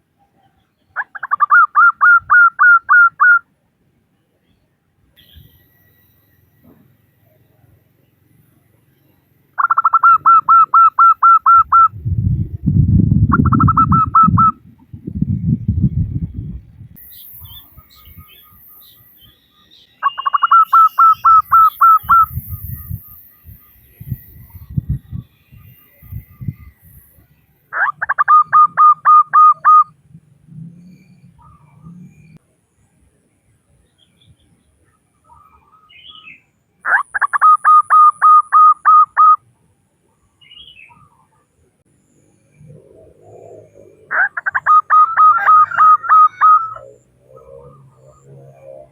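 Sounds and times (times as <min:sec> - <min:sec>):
dove cooing: 0:01.0 - 0:03.4, 0:09.6 - 0:14.8, 0:27.7 - 0:30.0, 0:36.8 - 0:39.4, 0:42.6 - 0:48.9
faint small bird chirps: 0:04.1 - 0:12.5, 0:17.0 - 0:33.0, 0:33.8 - 0:48.9.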